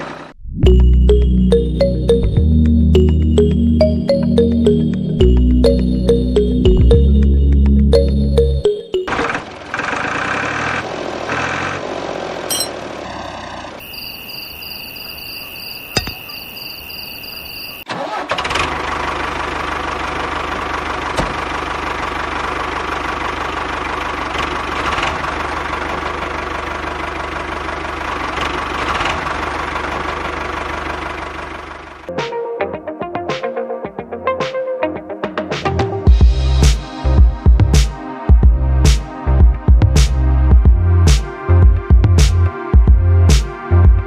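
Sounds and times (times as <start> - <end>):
engine running steadily: 1.1 - 13.8, 18.0 - 32.1.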